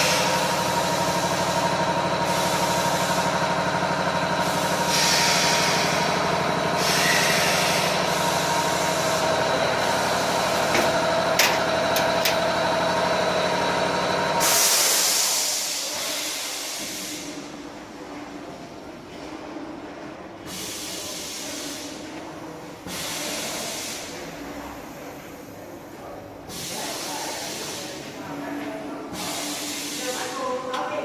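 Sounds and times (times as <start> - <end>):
pneumatic air hissing: 4.4 - 12.4, 14.4 - 17.5, 20.5 - 22.0, 22.9 - 24.3, 26.5 - 28.0, 29.1 - 30.4.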